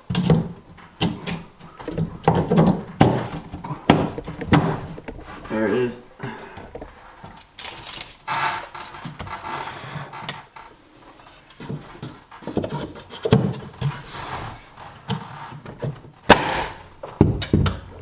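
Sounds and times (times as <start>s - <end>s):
wooden boards and tools clattering: 0.0s - 18.0s
sharp loud knock: 16.3s - 16.9s.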